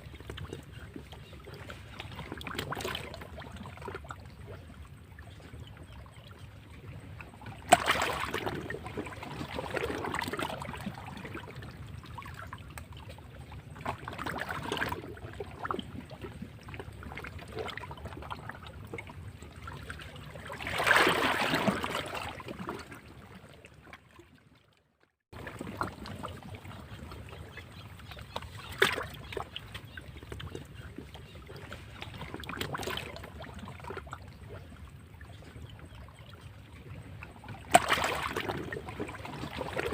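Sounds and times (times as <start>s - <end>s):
sharp splash: 7.6s - 11.0s, 20.5s - 22.9s, 28.6s - 29.2s, 37.7s - 39.9s
waves breaking against rocks: 7.6s - 11.6s, 20.2s - 23.0s, 37.6s - 39.9s.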